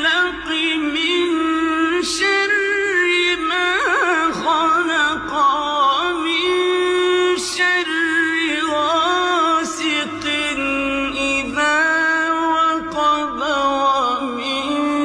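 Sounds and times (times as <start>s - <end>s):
person chanting melodic recitation: 0.0s - 15.0s.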